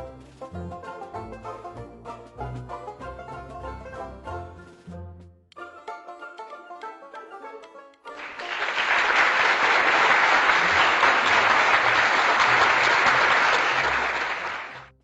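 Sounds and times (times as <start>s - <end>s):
banjo music: 0.0s - 15.0s
dense applause: 8.1s - 15.0s.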